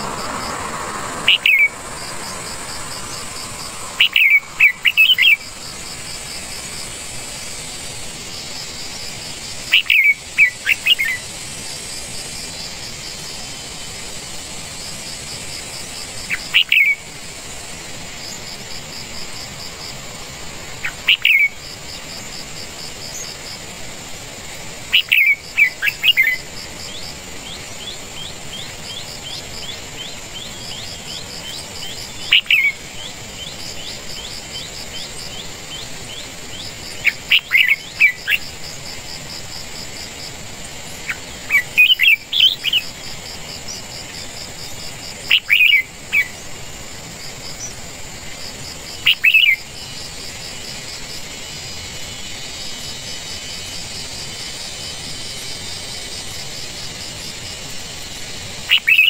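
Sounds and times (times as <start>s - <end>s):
bird chirping: 0.0s - 7.1s, 24.9s - 38.8s, 41.0s - 43.0s, 45.3s - 46.5s, 49.0s - 49.7s, 58.7s - 59.0s
high insect trill: 0.0s - 59.0s.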